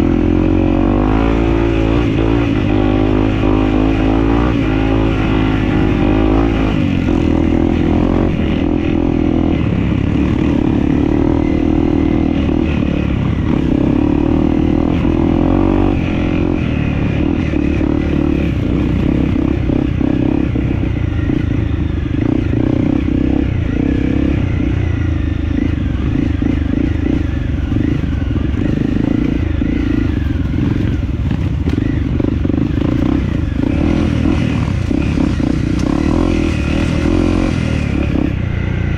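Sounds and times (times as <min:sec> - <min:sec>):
dirt bike engine: 0:00.0 - 0:38.9.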